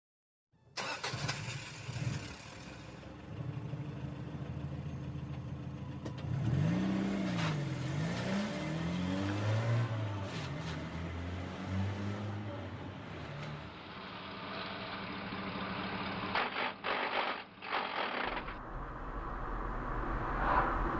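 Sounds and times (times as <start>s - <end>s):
car engine and road noise: 0.8s - 20.9s.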